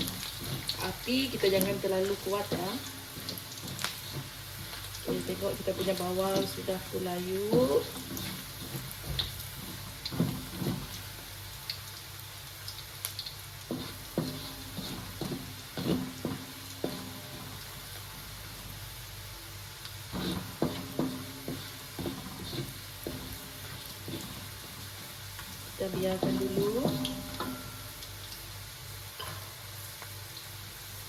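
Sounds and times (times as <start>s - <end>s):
spatula scraping a pan: 0.0s - 11.3s, 13.6s - 18.8s, 20.0s - 28.0s
onions sizzling in hot oil: 0.0s - 31.0s.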